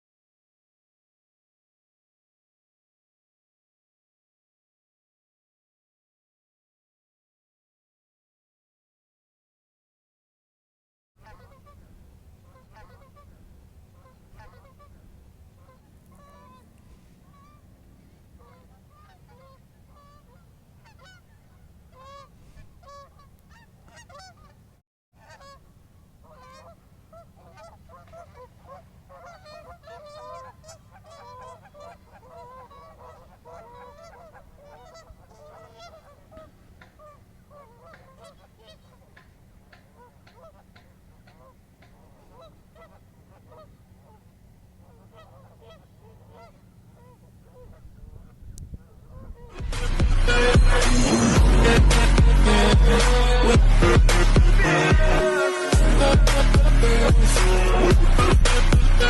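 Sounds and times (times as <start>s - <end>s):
geese honking: 11.2s - 11.8s, 12.4s - 59.0s
steady low rumble: 46.9s - 55.2s, 55.8s - 59.0s.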